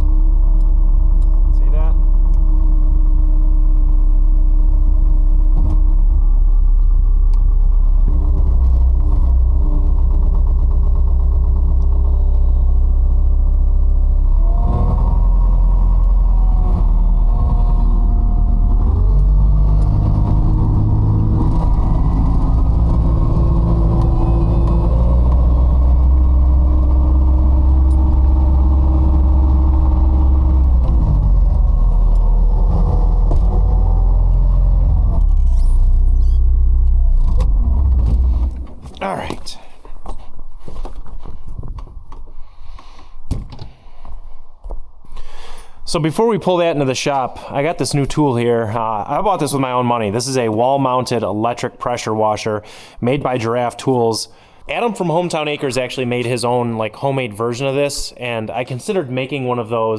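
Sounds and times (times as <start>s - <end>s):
diesel engine running: 0.0s - 41.6s, 52.6s - 53.0s.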